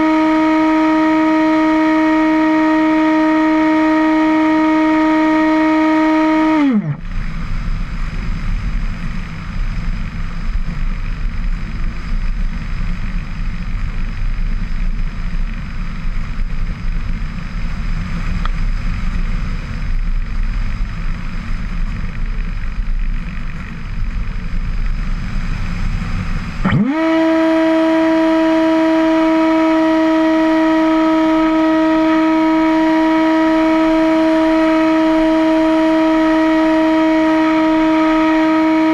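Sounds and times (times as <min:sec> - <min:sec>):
model aircraft motor hum: 0:00.0 - 0:38.9
low rushing rumble: 0:06.6 - 0:26.7.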